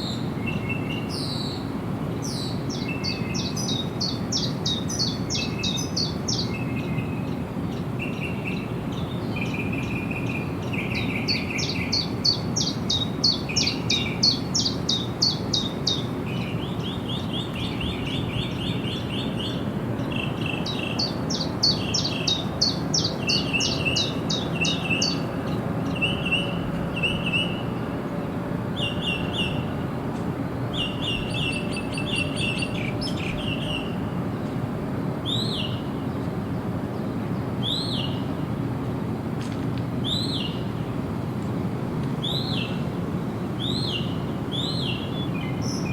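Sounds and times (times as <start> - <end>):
lower bird chirping: 30.7 - 34.0, 43.6 - 45.9.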